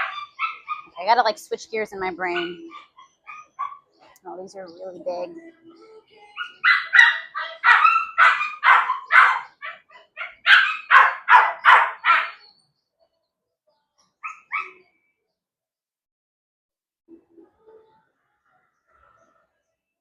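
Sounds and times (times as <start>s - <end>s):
puppy barking: 0.0s - 1.0s, 2.3s - 3.8s, 6.4s - 12.4s, 14.2s - 14.8s.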